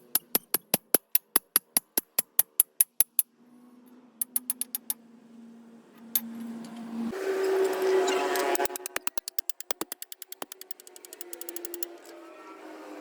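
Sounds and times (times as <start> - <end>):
sharp metallic clicks: 0.0 - 3.2, 4.2 - 5.0, 8.4 - 12.0.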